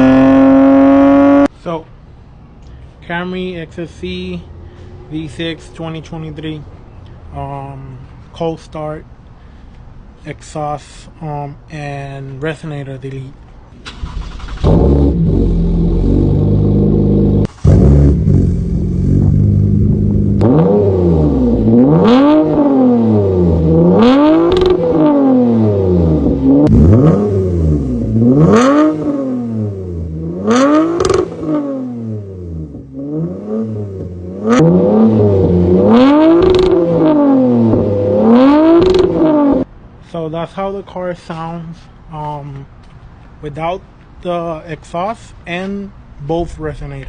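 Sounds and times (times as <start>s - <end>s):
car engine revving: 0.0s - 1.5s, 13.9s - 39.7s.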